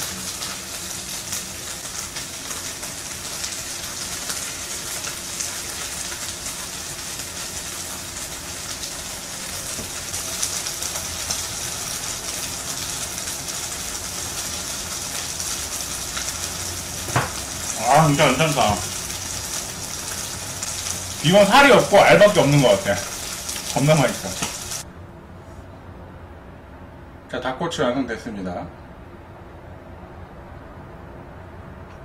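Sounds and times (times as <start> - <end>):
chicken sizzling in a frying pan: 0.0 - 24.8.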